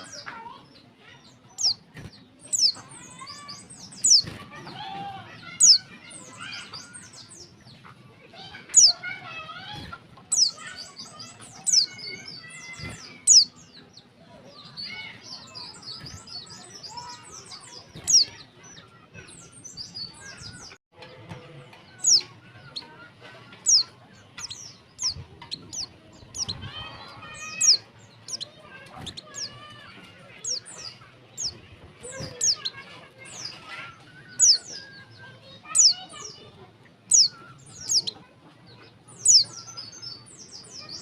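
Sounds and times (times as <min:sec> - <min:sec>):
bird soft chattering: 0:21.9 - 0:36.4.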